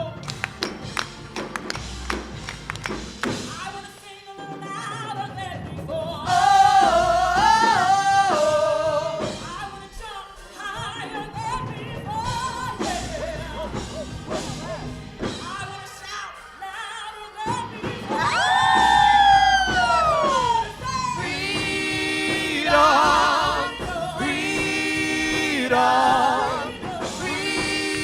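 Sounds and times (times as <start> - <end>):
instrumental accompaniment: 0.0 - 4.1
person singing gospel: 3.8 - 14.9, 15.6 - 28.0.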